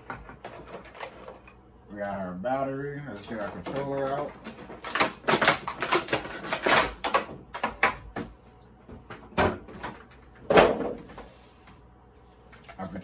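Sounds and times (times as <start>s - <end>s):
plastic and cardboard rustling: 3.2s - 7.3s.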